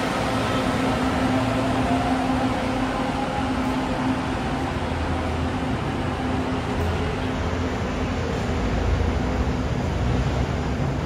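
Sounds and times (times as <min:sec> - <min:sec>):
constant low hum: 0:00.0 - 0:11.0
light-rail train motors and wheels: 0:00.0 - 0:11.0.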